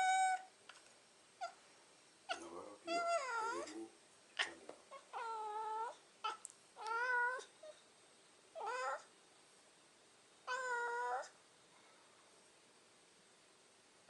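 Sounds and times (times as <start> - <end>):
cat chirp: 0.0 - 0.5, 2.9 - 3.7, 4.9 - 7.8, 8.6 - 9.1, 10.5 - 11.4
cat meowing: 0.0 - 0.5, 2.9 - 3.7, 4.9 - 7.5, 8.6 - 9.1, 10.5 - 11.4.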